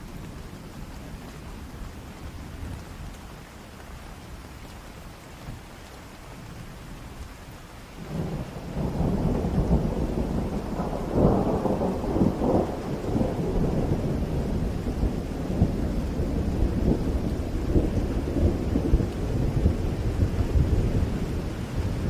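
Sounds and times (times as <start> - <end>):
rain: 0.0 - 22.0
thunder rumbling: 8.0 - 22.0.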